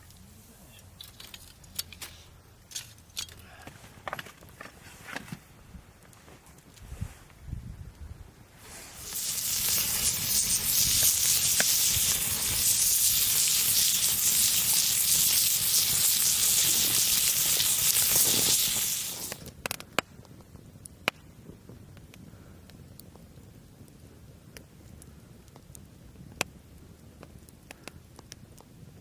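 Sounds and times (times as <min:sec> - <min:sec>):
loud sizzling: 0:08.8 - 0:19.4.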